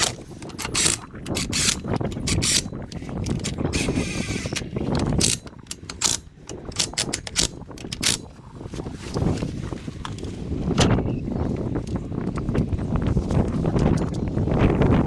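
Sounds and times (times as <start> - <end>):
hand tools clicking and clattering: 0.0 - 8.3.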